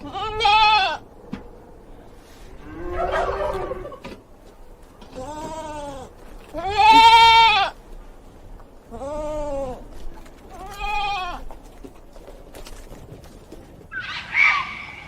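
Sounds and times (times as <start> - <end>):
farm animal bleating: 0.0 - 1.1, 5.0 - 7.8, 8.8 - 11.8.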